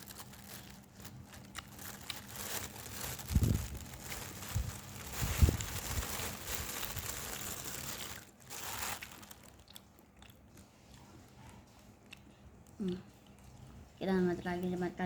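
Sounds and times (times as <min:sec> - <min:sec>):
person chewing sausage: 0:00.0 - 0:02.8, 0:08.7 - 0:13.8
crunching: 0:00.0 - 0:10.4
wet clicks of chewing: 0:09.5 - 0:13.8.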